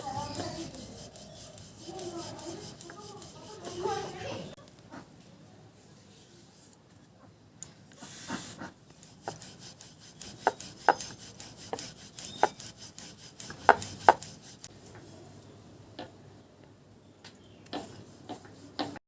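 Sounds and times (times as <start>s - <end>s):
rolling pin rubbing on board: 0.0s - 4.6s, 8.0s - 14.7s, 17.8s - 19.0s.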